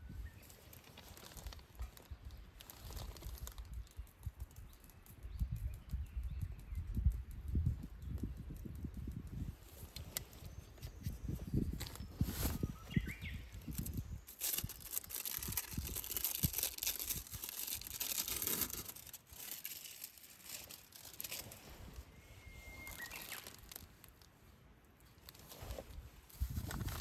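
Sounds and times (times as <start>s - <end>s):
rustling handling noise: 0.2s - 3.6s, 9.5s - 27.0s
bird chirping: 3.7s - 8.9s, 9.8s - 15.9s, 22.1s - 24.0s.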